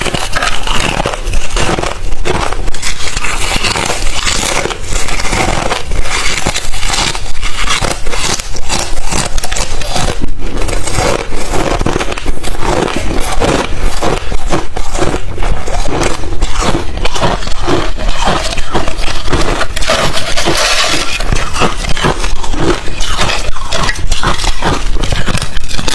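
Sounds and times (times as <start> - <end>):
ice chips being chewed: 0.0 - 25.9.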